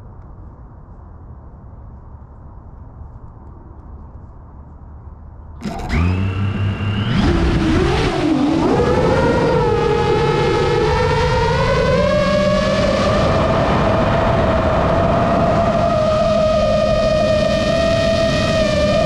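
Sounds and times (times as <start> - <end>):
model airplane motor whining: 5.6 - 19.0.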